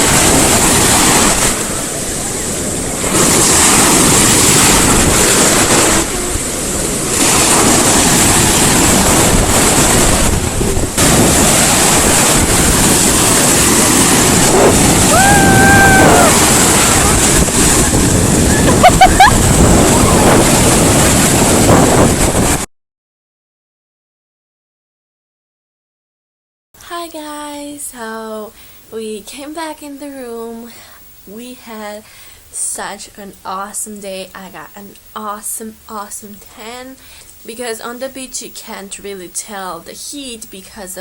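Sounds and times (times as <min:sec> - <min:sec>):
ocean surf breaking: 0:00.0 - 0:22.7
wind buffeting microphone: 0:00.0 - 0:22.7.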